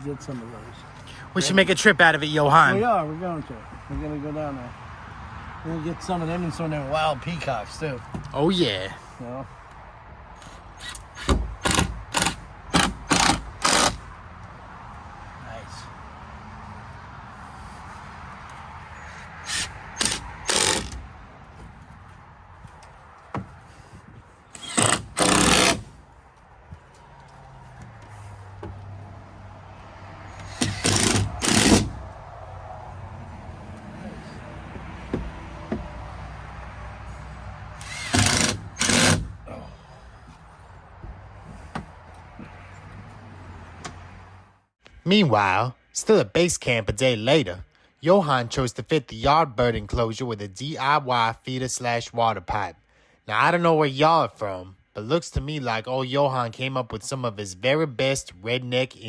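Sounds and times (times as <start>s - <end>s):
handheld power tool bursts: 10.8s - 14.0s, 19.4s - 21.0s, 24.5s - 25.9s, 30.4s - 32.0s, 37.8s - 39.4s.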